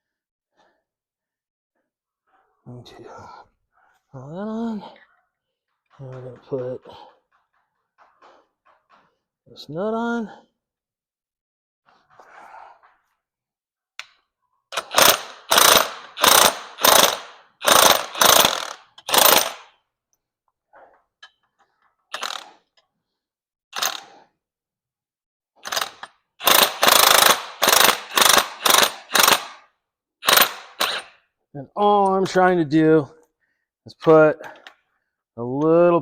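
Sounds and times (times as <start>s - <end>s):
ratchet wrench clicking: 14.8s - 19.7s, 22.1s - 22.6s, 23.8s - 24.2s, 25.6s - 29.6s, 30.2s - 31.2s.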